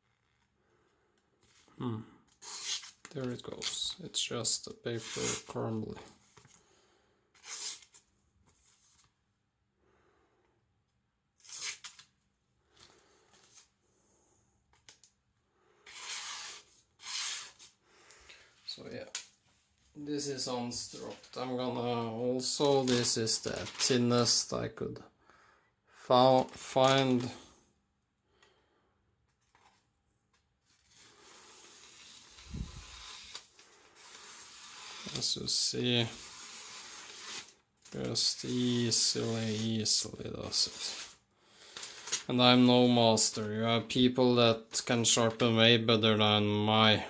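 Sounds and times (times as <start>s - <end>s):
knife slicing paper: 11.4s - 12.1s, 15.9s - 17.7s, 30.8s - 35.4s, 36.0s - 37.6s
thin paper rustling: 22.5s - 24.3s.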